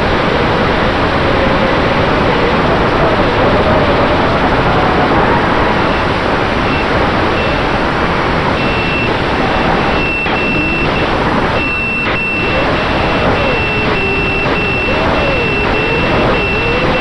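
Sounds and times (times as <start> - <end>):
wind rush on microphone: 0.0 - 17.0
quadcopter motor whine: 9.1 - 17.0.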